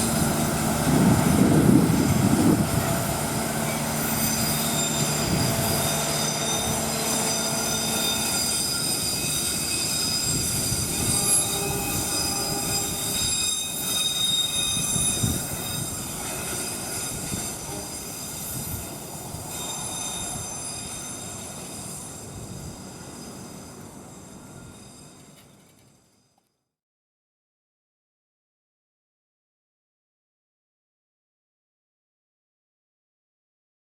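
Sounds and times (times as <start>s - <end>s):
high squeal: 0.0s - 26.4s
train wheels rumbling on rail: 0.0s - 26.4s.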